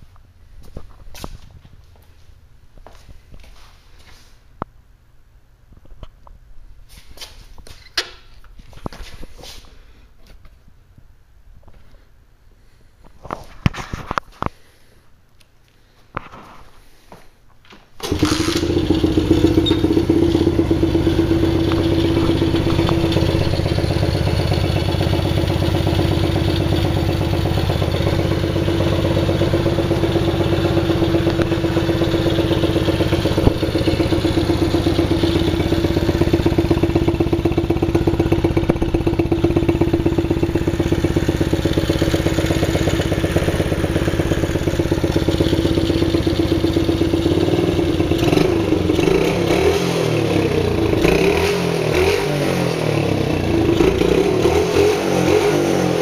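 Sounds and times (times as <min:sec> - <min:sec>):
motorcycle engine idling: 0:18.0 - 0:49.6, 0:50.2 - 0:51.2, 0:53.0 - 0:54.4.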